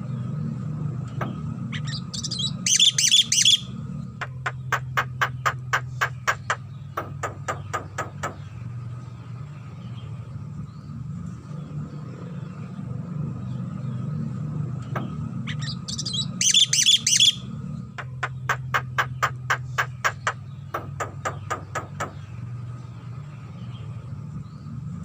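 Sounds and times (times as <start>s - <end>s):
myna rapid sharp clicks: 4.2s - 8.4s, 18.0s - 22.2s.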